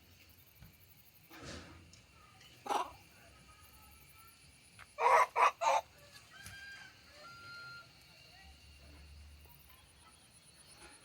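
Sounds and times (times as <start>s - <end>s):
animal calling: 5.0s - 5.9s.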